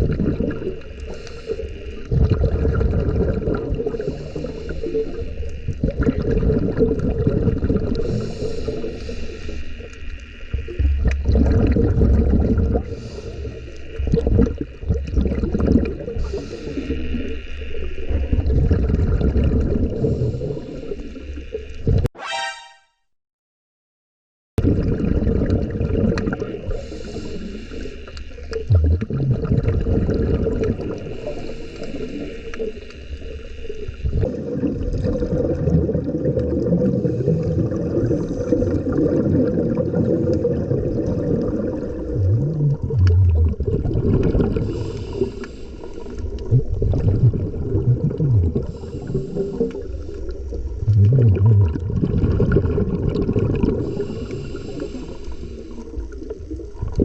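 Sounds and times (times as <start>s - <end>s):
low gurgles: 0.0s - 22.1s, 24.6s - 57.0s
muffled underwater noise: 26.2s - 57.0s.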